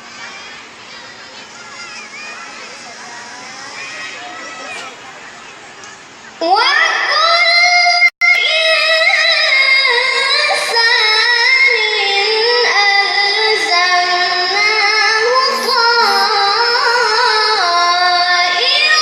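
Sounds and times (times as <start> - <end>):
child reciting in melodic style: 6.4 - 19.0.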